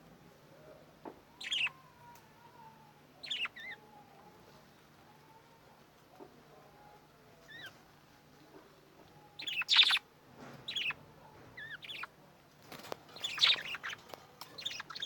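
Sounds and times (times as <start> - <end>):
budgerigars chirping: 1.4 - 1.8, 3.2 - 3.8, 9.4 - 10.0, 10.7 - 11.0, 11.6 - 12.1, 13.2 - 15.0.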